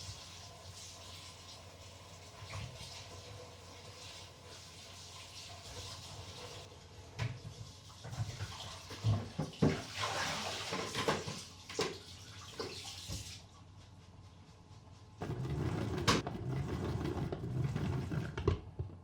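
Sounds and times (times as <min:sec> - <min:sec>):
water running: 0:00.0 - 0:13.6.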